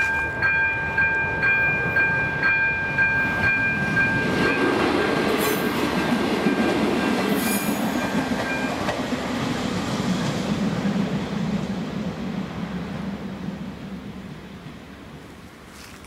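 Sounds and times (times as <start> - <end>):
train wheels clattering: 3.1 - 10.3.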